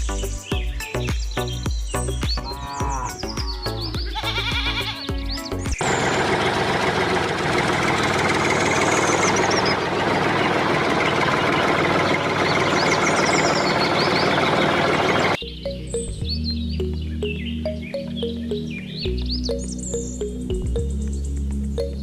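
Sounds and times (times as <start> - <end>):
small motor rattling: 5.8 - 15.4.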